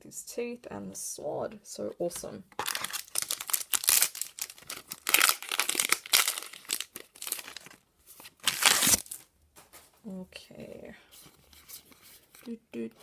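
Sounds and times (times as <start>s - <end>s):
foil wrapper crinkling: 2.6s - 9.3s.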